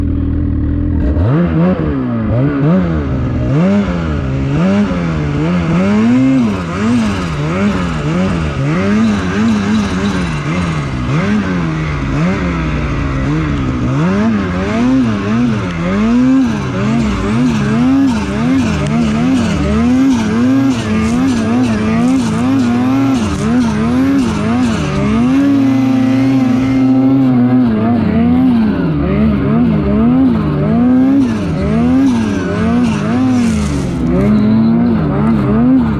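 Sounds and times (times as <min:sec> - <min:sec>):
snowmobile engine revving: 0:00.0 - 0:35.9.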